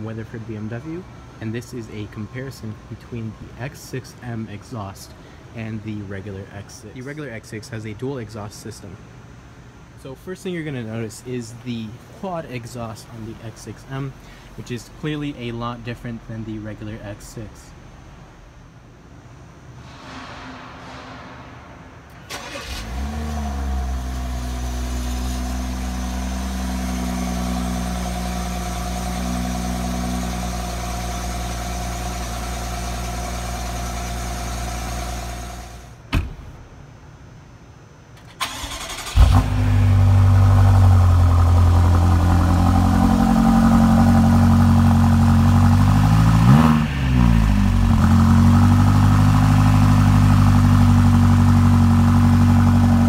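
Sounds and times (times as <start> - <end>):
car engine starting and idling: 19.8 - 36.9, 38.2 - 53.0
deeper car engine idling: 38.5 - 53.0.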